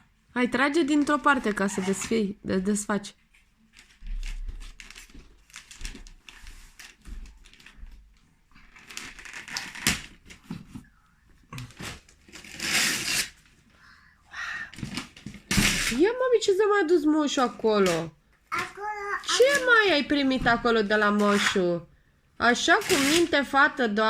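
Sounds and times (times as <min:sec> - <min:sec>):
wrapping paper tearing and crumpling: 0:03.8 - 0:07.8, 0:08.7 - 0:10.4, 0:11.5 - 0:13.5, 0:14.9 - 0:16.0, 0:22.8 - 0:23.4.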